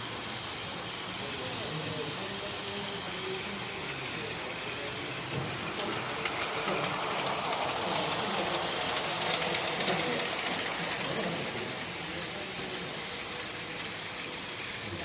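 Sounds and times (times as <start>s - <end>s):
toy trains whirring on plastic track: 0.0s - 15.0s
fine rapid clicking: 3.4s - 14.8s.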